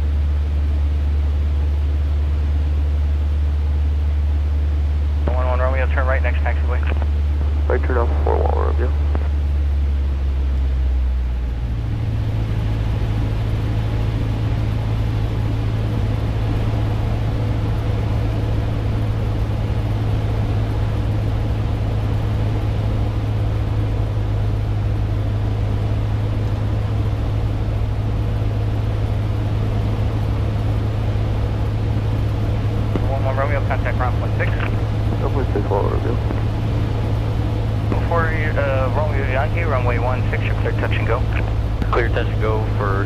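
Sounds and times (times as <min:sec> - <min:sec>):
light aircraft engine droning: 0:00.0 - 0:43.0.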